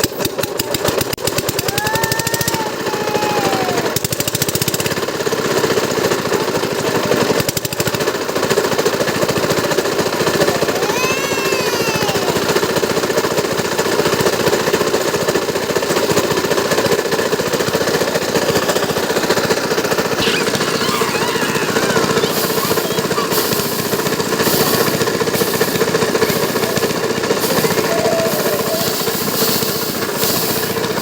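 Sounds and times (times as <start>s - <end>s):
diesel engine knocking: 0.0s - 10.8s, 12.4s - 31.0s
high pulsing hiss: 20.1s - 31.0s.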